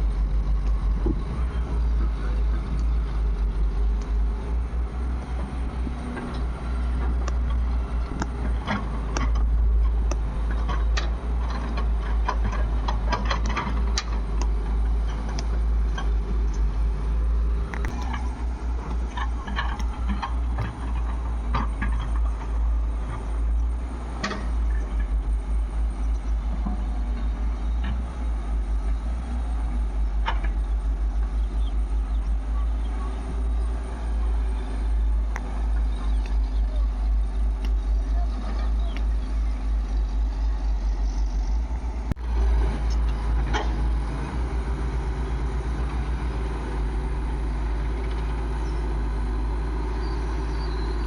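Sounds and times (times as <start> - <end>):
diesel engines rumbling: 0.0 - 51.0
short knocks and clanks: 17.8 - 23.5.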